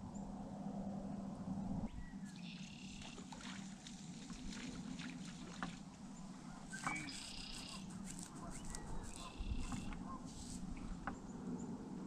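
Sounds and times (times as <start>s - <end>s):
faint outdoor background: 0.0s - 12.0s
bird calling: 6.2s - 11.1s.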